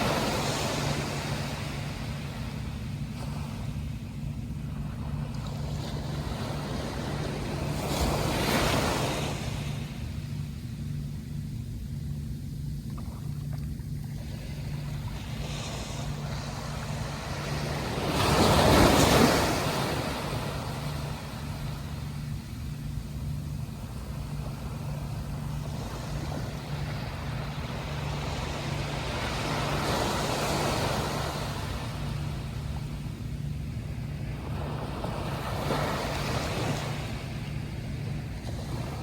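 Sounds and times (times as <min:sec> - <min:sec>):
sea waves crashing: 0:00.0 - 0:03.8, 0:14.4 - 0:22.3.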